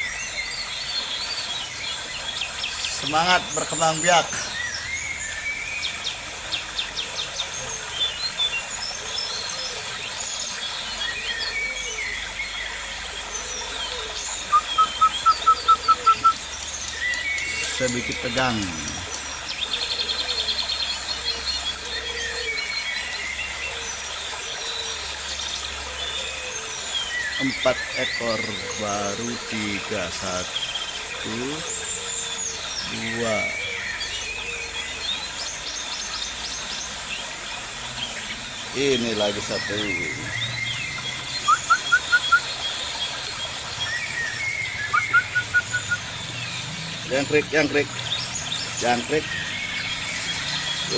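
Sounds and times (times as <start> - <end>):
birds chirping and whistling: 0.0 - 50.9
high whistled bird notes: 13.6 - 19.1, 38.7 - 46.1
bird short rising chirps: 13.9 - 17.7, 43.8 - 46.1.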